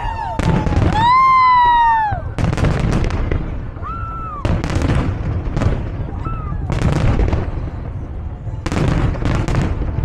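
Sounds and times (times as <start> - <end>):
fireworks bangs and crackling: 0.0 - 10.0.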